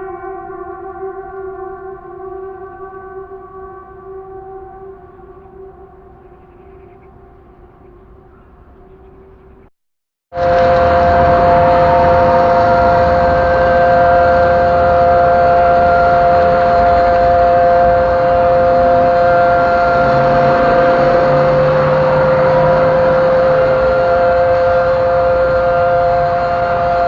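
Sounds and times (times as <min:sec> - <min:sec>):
steady two-note siren: 0:00.0 - 0:07.4, 0:10.3 - 0:27.0.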